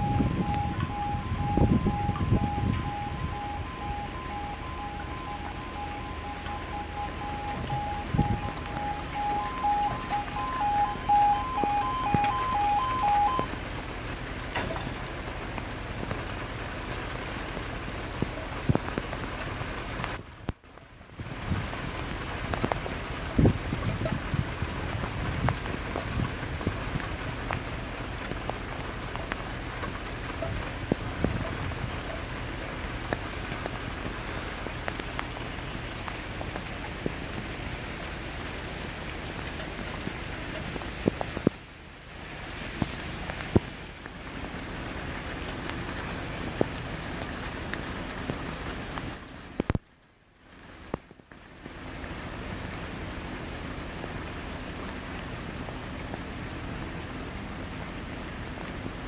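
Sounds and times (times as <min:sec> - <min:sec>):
raindrops tapping microphone: 0:00.0 - 0:59.0
torrential rain pouring: 0:00.0 - 0:59.0.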